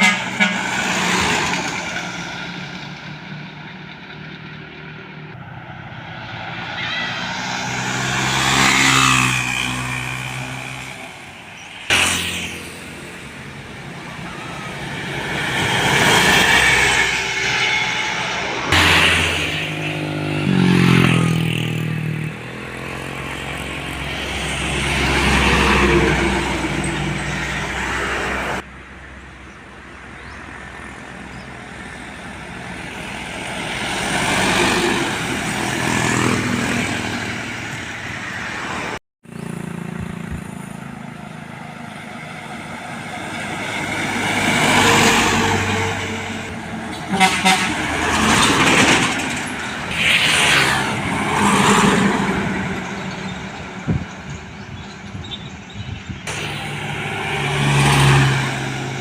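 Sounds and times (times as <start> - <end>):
vehicle horn: 0.0 - 1.0, 46.9 - 48.2
diesel trucks passing: 0.0 - 59.0.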